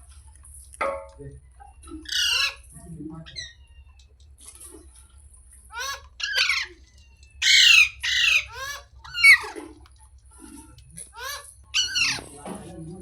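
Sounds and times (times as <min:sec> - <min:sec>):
parrot squawking: 0:02.0 - 0:03.7, 0:05.7 - 0:09.8, 0:10.9 - 0:12.5.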